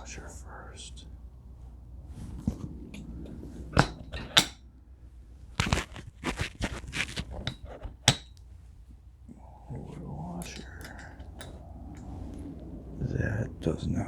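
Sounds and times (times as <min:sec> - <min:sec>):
metal washers clinking: 0:02.3 - 0:04.7, 0:07.2 - 0:09.4, 0:10.2 - 0:12.7.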